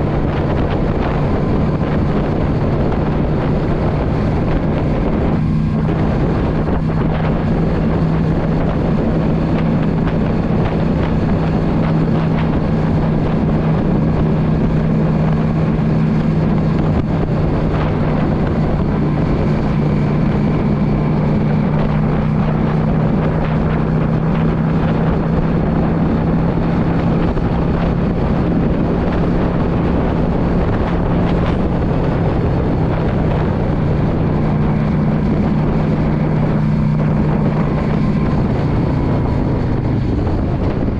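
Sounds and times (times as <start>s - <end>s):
motorcycle engine running: 0.0s - 40.9s
wind buffeting microphone: 0.0s - 40.9s.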